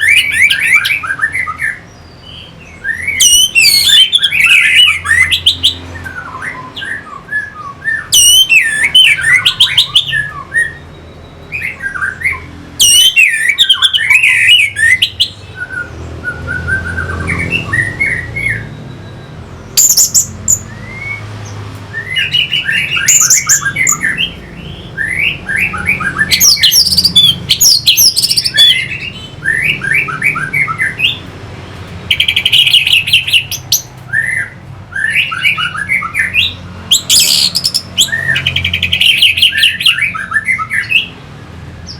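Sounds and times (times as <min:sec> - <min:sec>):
thrush singing whistled notes: 0:00.0 - 0:41.9.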